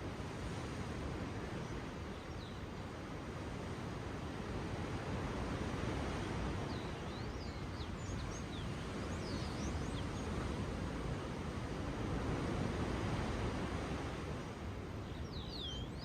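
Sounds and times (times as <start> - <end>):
ocean waves washing on shore: 0.0 - 16.0
bird chirping: 15.1 - 16.0.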